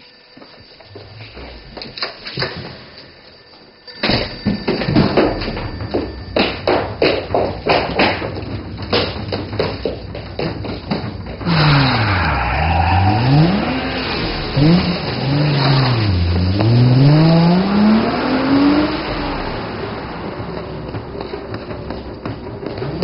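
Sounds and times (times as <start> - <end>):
tyre and road noise: 4.9 - 23.0
car engine revving: 11.3 - 23.0.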